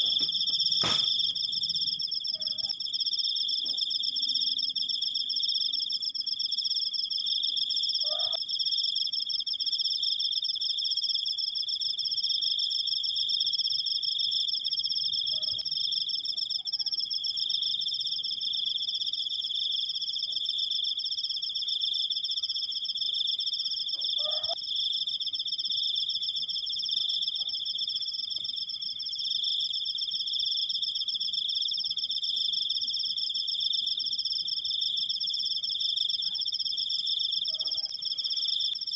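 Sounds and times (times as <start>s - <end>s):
cricket trilling: 0.0s - 38.9s.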